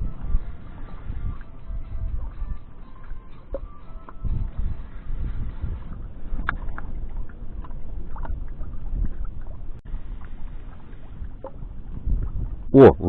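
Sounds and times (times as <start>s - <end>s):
water lapping against boat: 0.0s - 13.0s
wind buffeting microphone: 0.0s - 13.0s.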